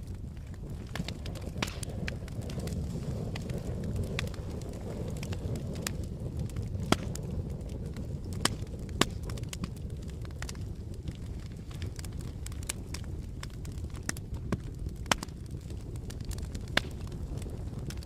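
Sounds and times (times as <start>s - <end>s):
campfire crackles and pops: 0.0s - 18.0s
low rumble of flames: 0.0s - 18.0s.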